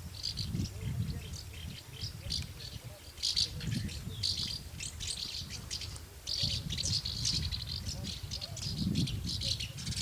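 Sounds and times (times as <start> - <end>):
swallows twittering: 0.1 - 10.0.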